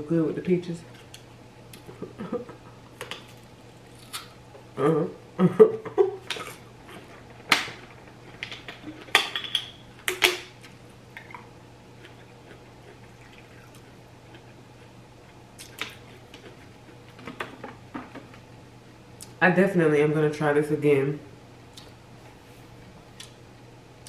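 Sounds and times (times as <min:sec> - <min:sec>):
peach being chewed: 0:11.9 - 0:17.2.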